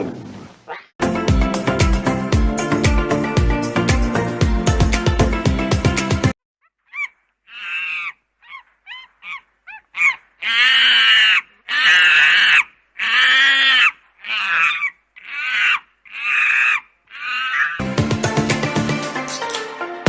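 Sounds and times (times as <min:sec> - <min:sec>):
music: 0:01.0 - 0:06.4, 0:17.8 - 0:20.0
animal harsh rasping calls: 0:06.6 - 0:17.8.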